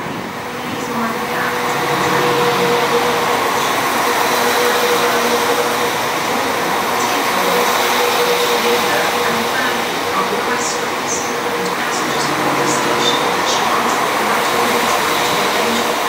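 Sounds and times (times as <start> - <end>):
train engine hum and whine: 0.0 - 16.0
wheels rumbling: 0.0 - 16.0.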